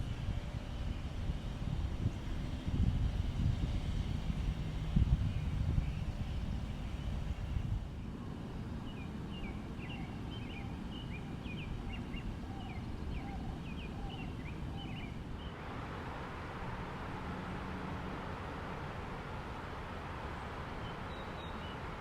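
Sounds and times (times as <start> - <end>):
steady low rumble: 0.0 - 8.2
bird chirping: 20.8 - 21.9.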